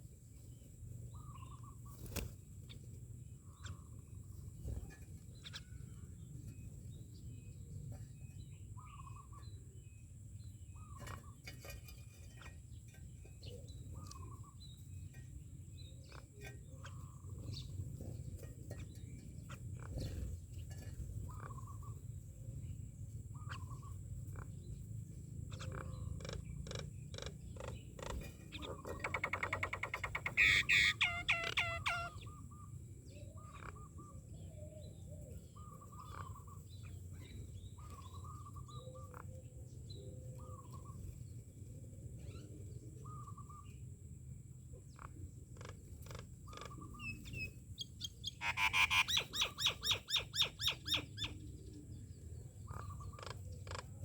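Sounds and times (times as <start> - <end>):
low steady rumble: 0.0 - 29.1
rapid bird chattering: 23.3 - 32.6, 44.9 - 51.5, 52.6 - 54.0
birds whistled calls: 25.5 - 41.2, 45.6 - 54.0.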